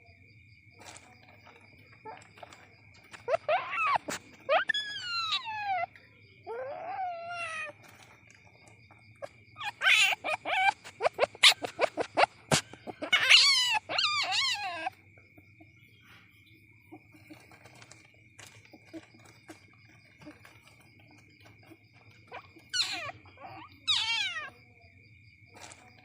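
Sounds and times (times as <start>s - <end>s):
kitten high squeals: 3.3s - 5.9s, 6.5s - 7.8s, 9.6s - 12.1s, 12.9s - 14.9s, 22.3s - 24.5s.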